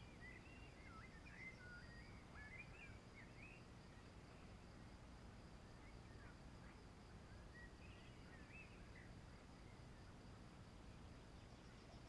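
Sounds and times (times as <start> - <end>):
outdoor background noise: 0.0 - 12.0
songbird chirping: 0.0 - 12.0.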